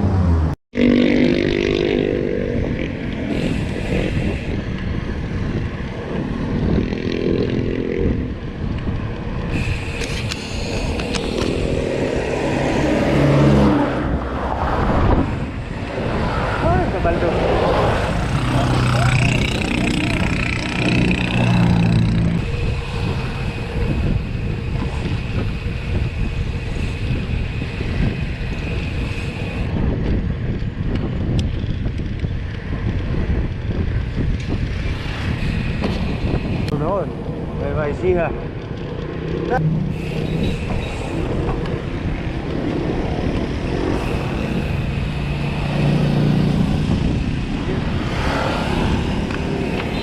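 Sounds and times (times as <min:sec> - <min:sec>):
wind buffeting microphone: 0:01.3 - 0:50.0
motorcycle engine running: 0:18.1 - 0:23.3.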